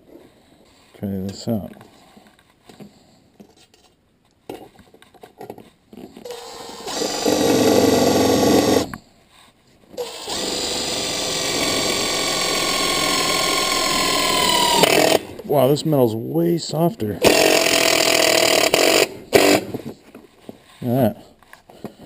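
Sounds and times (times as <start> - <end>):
electric drill boring into metal: 6.2 - 9.0, 10.0 - 15.2, 17.2 - 19.7.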